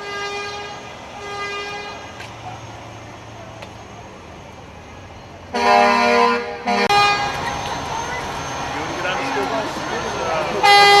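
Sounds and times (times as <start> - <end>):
loud low horn blast: 5.5 - 7.4, 10.6 - 11.0.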